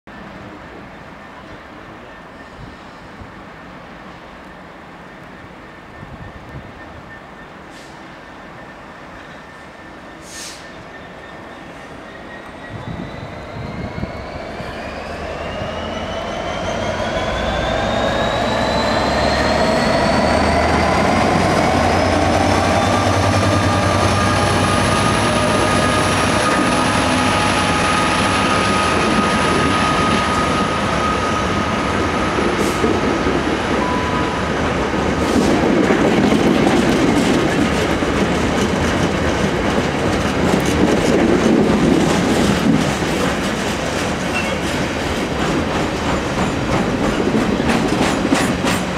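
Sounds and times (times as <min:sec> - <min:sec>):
diesel locomotive engine passing: 0:00.2 - 0:48.9.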